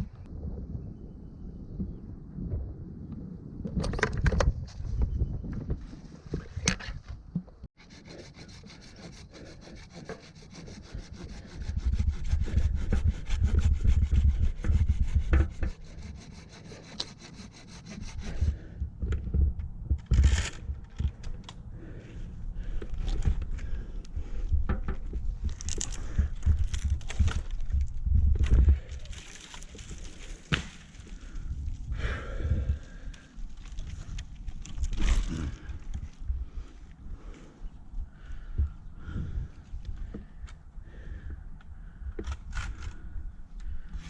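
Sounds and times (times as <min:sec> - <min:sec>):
handsaw cutting wood: 0:07.8 - 0:18.7.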